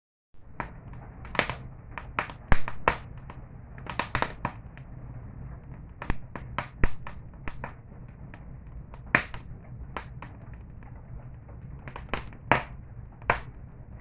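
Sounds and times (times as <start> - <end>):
campfire crackling and popping: 0.4 - 14.0.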